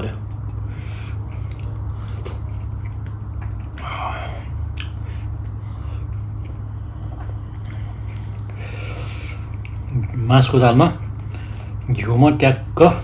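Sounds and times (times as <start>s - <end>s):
low hum: 0.0s - 13.0s
person chewing food: 0.4s - 10.2s.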